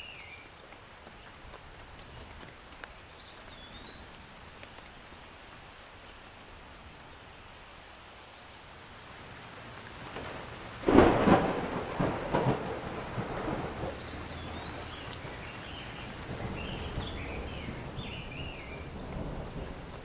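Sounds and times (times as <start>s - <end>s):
steady rain: 0.0s - 20.0s
thunder clap and rumbling: 9.2s - 20.0s
bird chirping: 13.2s - 18.9s.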